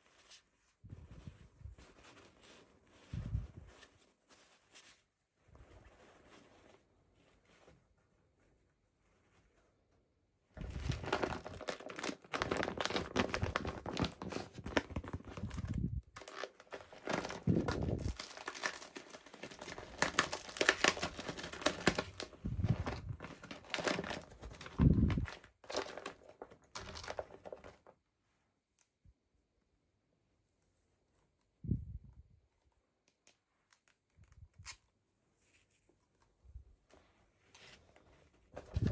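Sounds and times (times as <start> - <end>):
packaging crinkling and tearing: 10.6 - 27.9.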